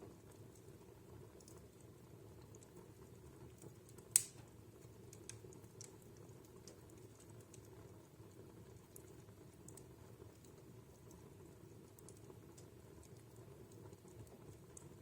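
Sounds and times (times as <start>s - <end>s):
fire crackling: 0.0s - 15.0s
sharp pop of fire: 4.1s - 4.5s.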